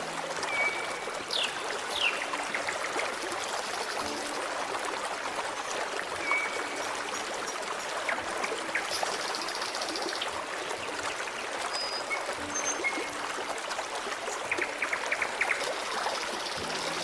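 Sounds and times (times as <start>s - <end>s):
stream flowing: 0.0s - 17.0s.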